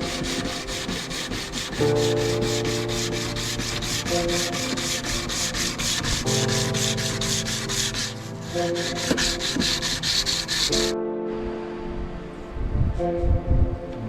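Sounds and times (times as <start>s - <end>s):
hand sanding strokes: 0.0s - 10.9s.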